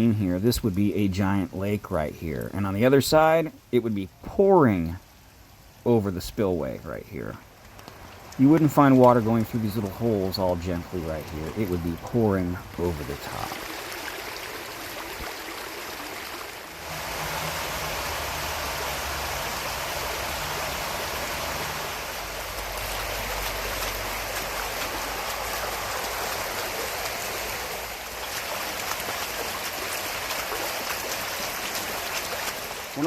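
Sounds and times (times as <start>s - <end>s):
stream rushing over rocks: 7.5s - 33.0s.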